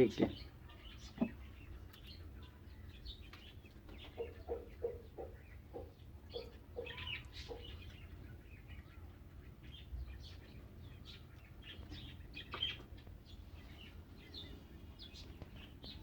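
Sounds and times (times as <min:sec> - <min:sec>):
small birds chirping: 0:00.0 - 0:16.0
hen clucking: 0:03.8 - 0:08.5.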